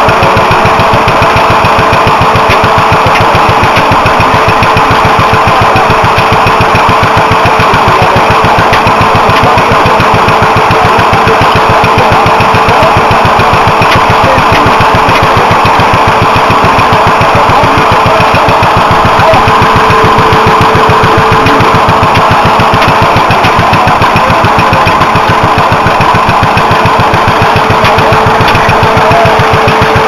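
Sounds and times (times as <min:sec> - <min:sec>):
stationary engine running: 0:00.0 - 0:30.0.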